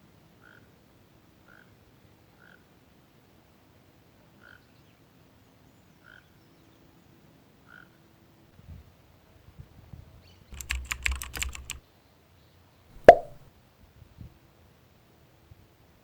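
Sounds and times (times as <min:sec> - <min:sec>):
sharp knock: 0:10.6 - 0:11.8, 0:13.0 - 0:13.4.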